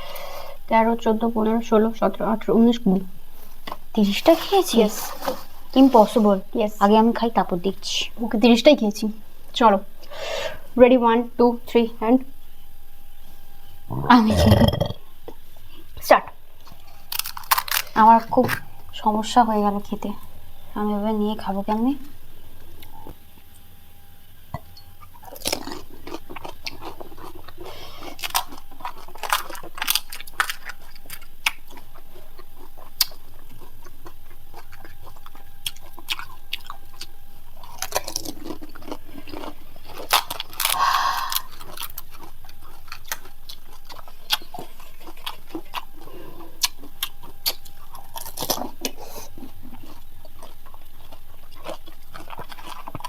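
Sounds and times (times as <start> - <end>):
wet chewing: 13.9 - 23.2, 24.5 - 53.0
crisp shells cracking when bitten: 16.6 - 18.7, 25.2 - 46.1.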